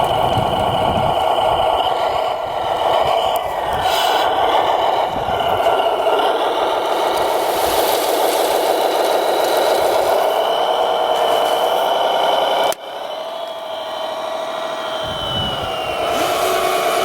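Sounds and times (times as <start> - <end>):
rattling scraping mechanical noise: 0.0 - 12.8
electric motors whining: 0.0 - 17.0.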